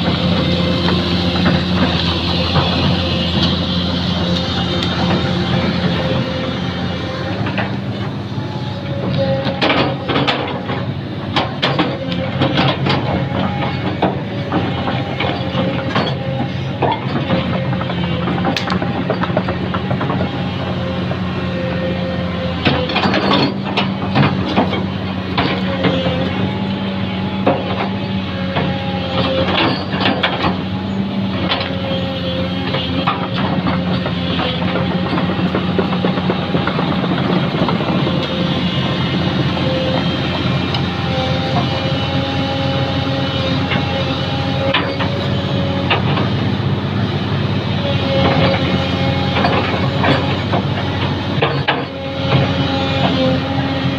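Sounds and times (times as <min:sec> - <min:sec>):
machine engine running: 0:00.0 - 0:53.9
knocks and clatter: 0:09.0 - 0:20.8, 0:22.6 - 0:26.5, 0:27.4 - 0:46.4, 0:48.0 - 0:53.4.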